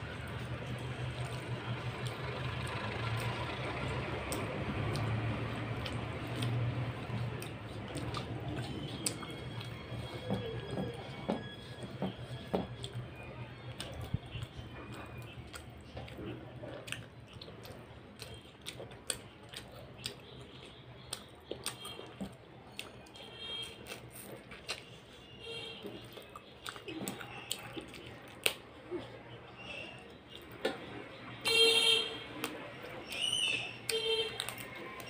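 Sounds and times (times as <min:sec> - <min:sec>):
person chewing: 0:00.0 - 0:30.8, 0:31.7 - 0:35.0.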